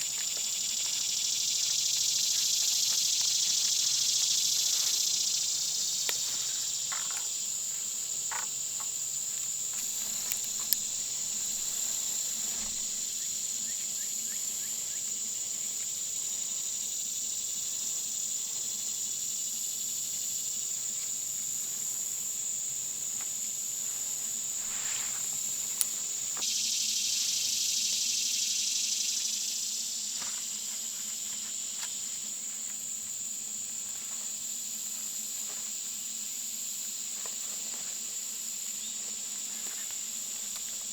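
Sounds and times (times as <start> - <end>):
insects chirping: 0.0 - 40.9.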